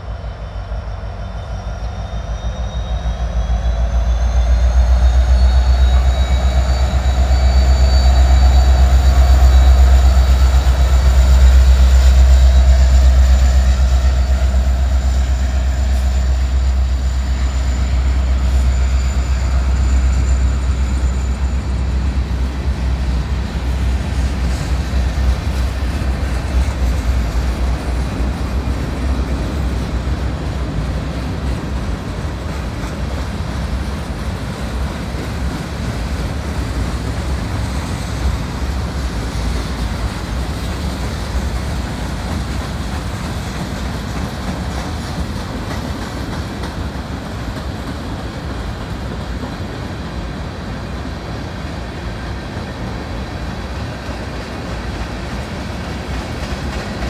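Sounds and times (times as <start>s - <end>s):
diesel locomotive engine drone: 0.0s - 57.0s.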